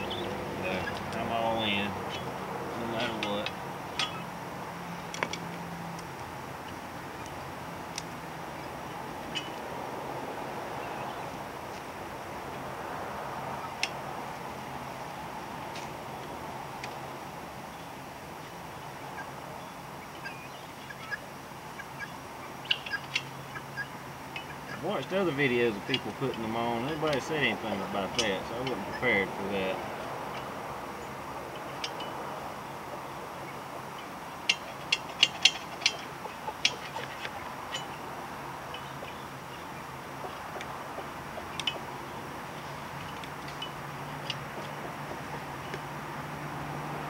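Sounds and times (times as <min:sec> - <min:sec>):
poultry calling: 0:00.0 - 0:03.0, 0:20.1 - 0:25.7.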